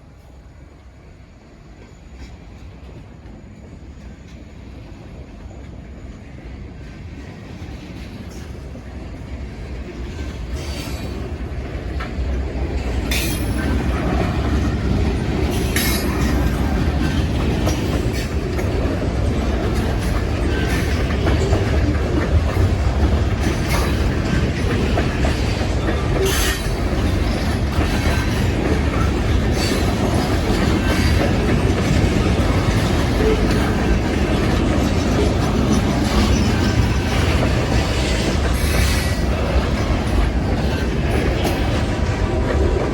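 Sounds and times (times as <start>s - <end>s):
train rolling past: 0.0s - 42.9s
wheels clicking over rail joints: 9.6s - 42.9s
wheel squeal: 25.8s - 26.8s.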